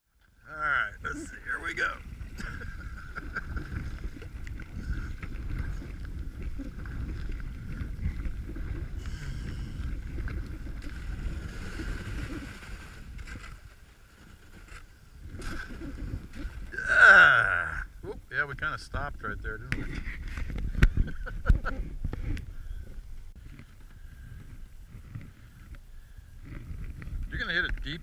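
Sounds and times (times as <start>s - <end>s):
kayak scraping through ice: 1.3s - 16.9s.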